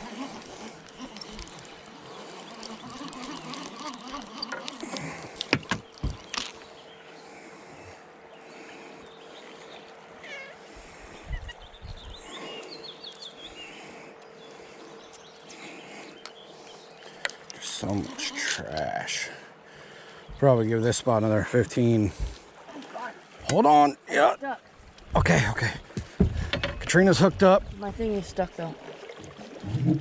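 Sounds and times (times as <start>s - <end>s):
short bird calls: 0.0s - 5.2s, 10.2s - 17.1s.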